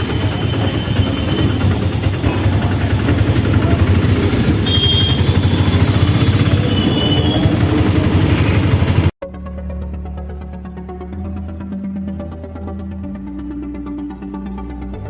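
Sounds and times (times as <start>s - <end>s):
auto-rickshaw engine running: 0.0s - 9.2s.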